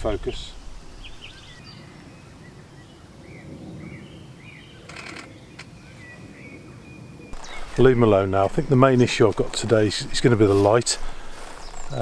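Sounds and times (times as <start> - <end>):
small birds chirping: 0.0 - 12.0
wind rumble on microphone: 0.0 - 12.0.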